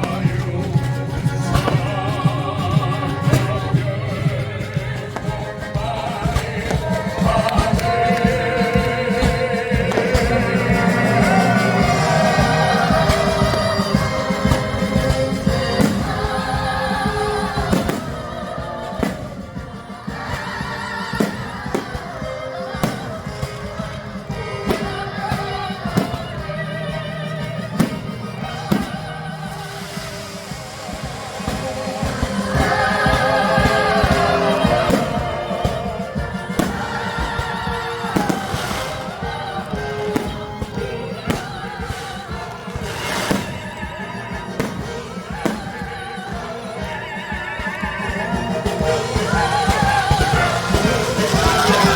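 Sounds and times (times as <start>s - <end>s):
fireworks bangs: 0.0s - 51.9s
orchestral music: 0.0s - 51.9s
singer with wide vibrato: 0.0s - 51.9s
firework bang: 41.3s - 43.7s.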